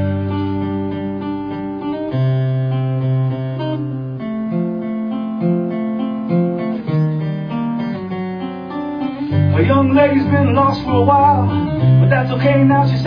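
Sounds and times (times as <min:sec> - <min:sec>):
acoustic guitars playing chords: 0:00.0 - 0:13.0.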